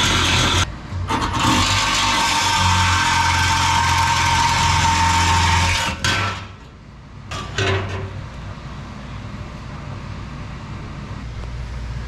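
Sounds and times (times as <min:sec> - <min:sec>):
handheld power tool running: 0:00.0 - 0:00.7.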